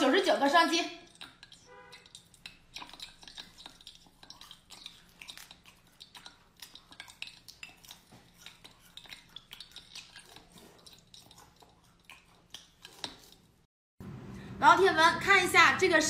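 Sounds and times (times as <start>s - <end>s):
crisp crunching and chewing: 1.1s - 13.5s.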